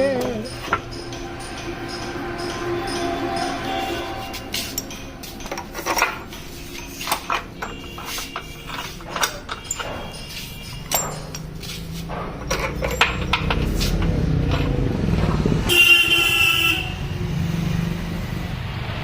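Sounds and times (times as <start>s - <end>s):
vehicle rumble: 0.0s - 19.0s
car horn: 2.4s - 5.2s, 7.4s - 11.3s, 15.7s - 17.2s.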